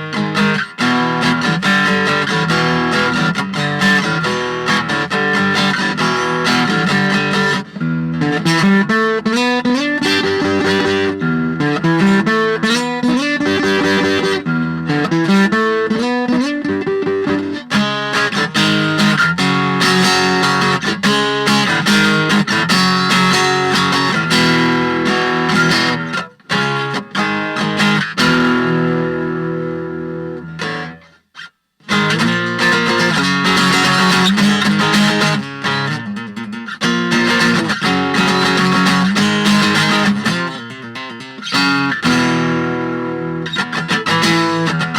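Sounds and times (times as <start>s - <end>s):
acoustic guitar picking and chords: 0.0s - 44.9s.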